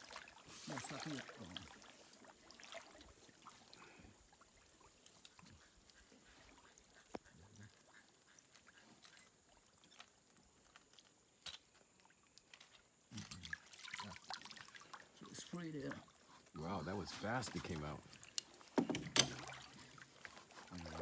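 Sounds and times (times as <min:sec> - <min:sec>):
faint ticks: 0:06.9 - 0:09.2.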